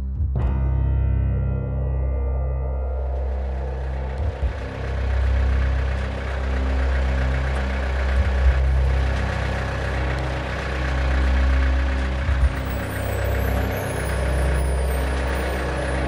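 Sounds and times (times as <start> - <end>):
tractor engine idling: 3.2 - 16.0.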